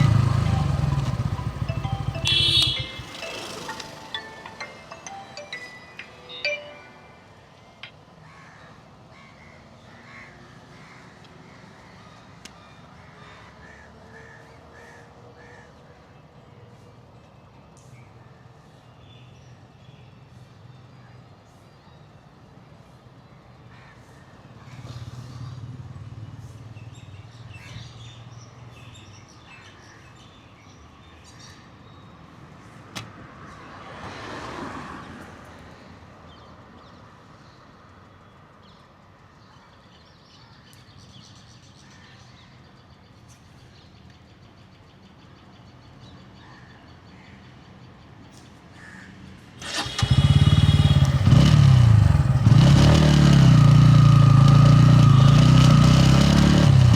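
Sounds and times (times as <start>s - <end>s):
motorcycle engine starting and running: 0.0s - 4.4s, 49.6s - 56.9s
birds chirping: 0.0s - 7.0s
faint passing vehicles: 0.0s - 9.1s, 19.5s - 29.5s, 30.8s - 39.5s, 48.0s - 56.9s.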